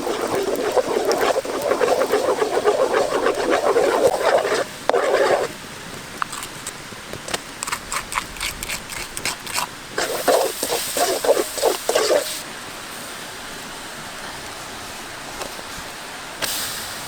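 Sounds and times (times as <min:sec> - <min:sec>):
loud chewing and slurping: 0:00.0 - 0:05.6, 0:06.2 - 0:06.8, 0:07.6 - 0:12.4
small crunches and clicks: 0:05.9 - 0:09.7.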